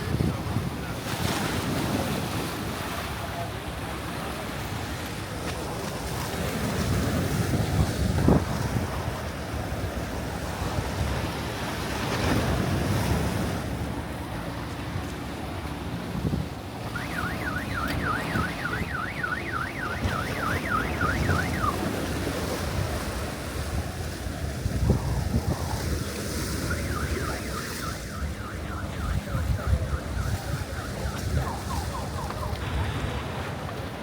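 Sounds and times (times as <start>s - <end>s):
wind buffeting microphone: 0.0s - 3.0s, 5.6s - 34.0s
surf washing: 0.0s - 34.0s
electronic alarm warbling: 16.8s - 23.0s, 24.2s - 32.8s.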